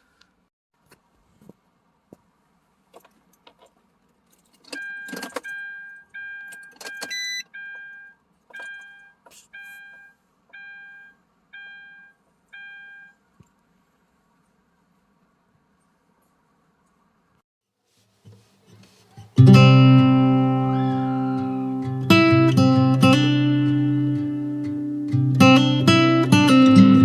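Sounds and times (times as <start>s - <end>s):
electronic warning chime beeping: 4.8s - 13.2s.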